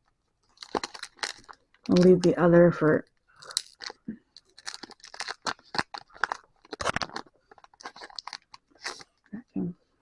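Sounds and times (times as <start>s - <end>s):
foil wrapper crackling: 0.5s - 2.3s, 3.4s - 9.2s.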